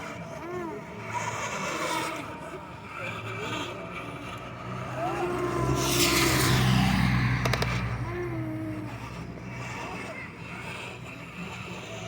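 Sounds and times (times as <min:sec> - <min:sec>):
vehicle engine passing: 0:03.5 - 0:10.0
sharp clicks: 0:07.4 - 0:07.9.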